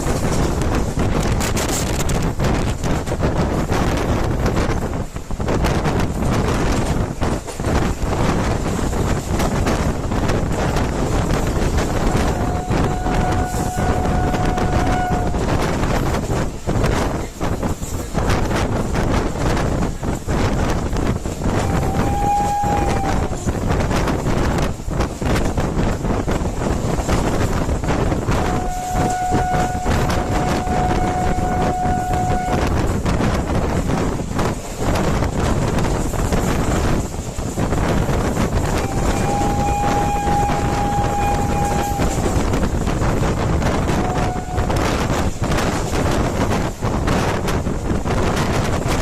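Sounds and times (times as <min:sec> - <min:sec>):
rail clatter: 0:00.0 - 0:49.0
rushing wind: 0:00.0 - 0:49.0
train running: 0:00.0 - 0:49.0
train horn: 0:11.1 - 0:16.3, 0:21.5 - 0:24.6, 0:28.1 - 0:33.3, 0:38.3 - 0:45.2.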